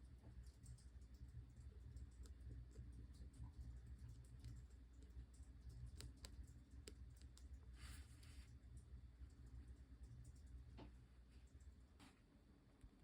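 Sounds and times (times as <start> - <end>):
low steady hum: 0.0 - 13.0
markers clicking and tapping: 0.6 - 7.6.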